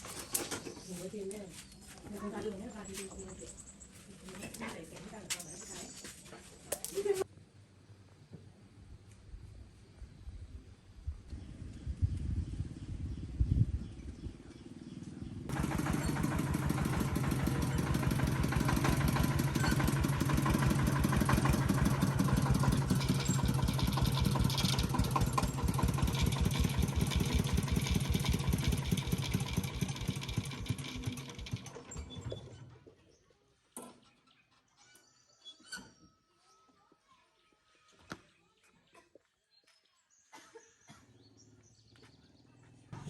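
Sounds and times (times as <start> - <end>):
small tractor engine running: 14.6 - 32.9, 42.2 - 43.0.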